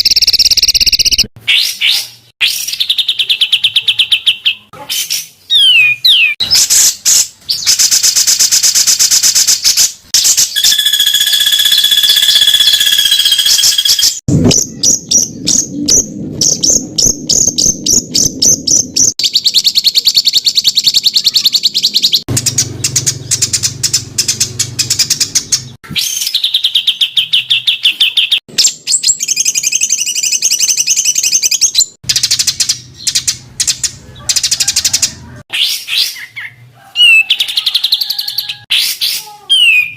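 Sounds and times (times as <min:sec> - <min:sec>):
songbird harsh notes and trills: 0:00.0 - 0:34.6
bird held whistle: 0:10.2 - 0:14.2.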